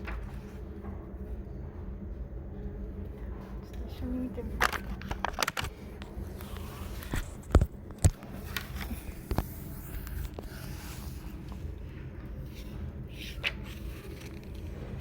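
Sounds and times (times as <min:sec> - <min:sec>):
low room hum: 0:00.0 - 0:15.0
pages rustling: 0:04.6 - 0:11.8, 0:12.4 - 0:15.0.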